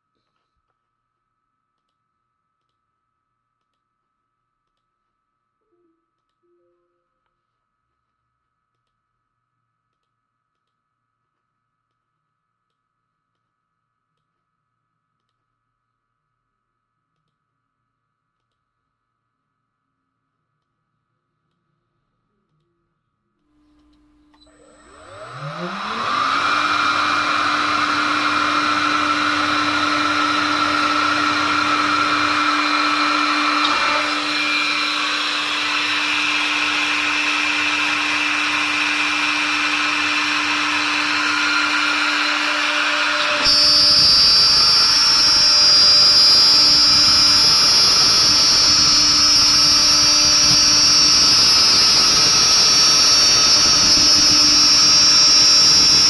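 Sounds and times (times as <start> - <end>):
router spindle spinning: 24.4 - 56.0.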